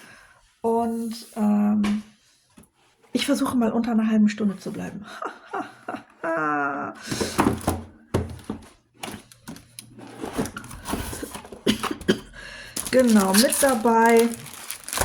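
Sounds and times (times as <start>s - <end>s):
packaging rustling: 12.7s - 15.0s.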